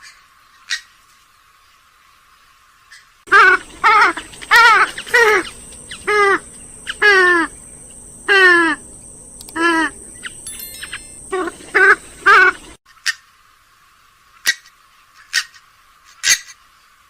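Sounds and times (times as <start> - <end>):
swamphen harsh nasal calls: 2.9 - 8.9, 9.6 - 10.4, 11.3 - 13.2.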